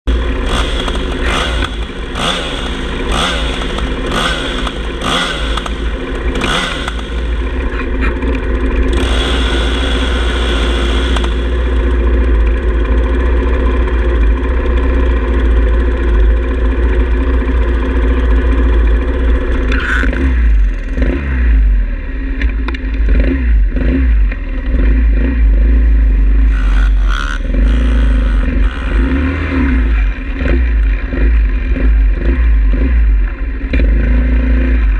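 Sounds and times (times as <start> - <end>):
small motorbike engine running: 0.1 - 34.9
sharp clattering ticks: 0.5 - 8.4, 26.5 - 29.1.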